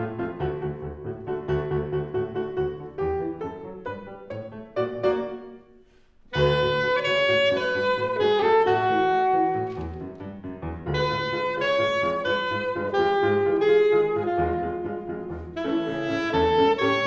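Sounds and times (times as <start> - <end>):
instrumental ensemble playing: 6.3 - 17.0.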